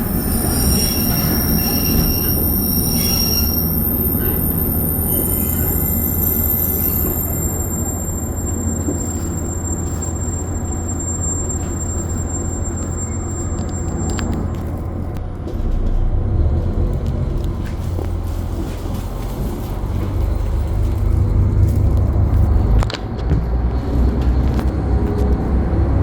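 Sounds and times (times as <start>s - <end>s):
thin high tone: 0.0s - 14.5s
train rumble on rails: 0.0s - 26.0s.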